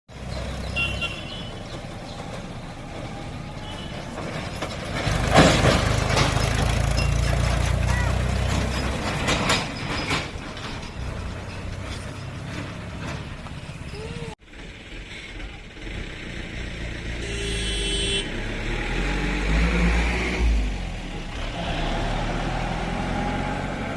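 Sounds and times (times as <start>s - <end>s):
tractor diesel engine: 0.1s - 23.9s
sharp knocks and rattles: 1.5s - 13.9s.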